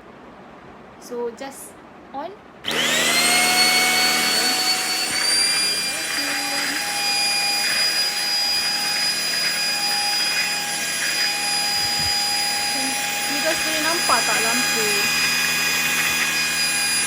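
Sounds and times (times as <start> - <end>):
handheld vacuum cleaner running: 2.7 - 17.0.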